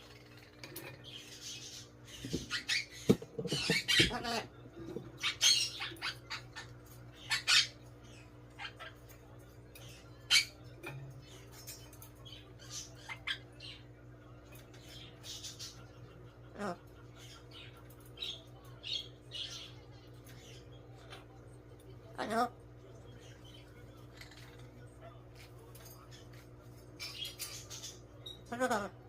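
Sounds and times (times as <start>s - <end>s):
parrot squawking and chirping: 1.0s - 9.2s, 9.8s - 13.9s, 22.1s - 22.6s, 27.0s - 29.0s.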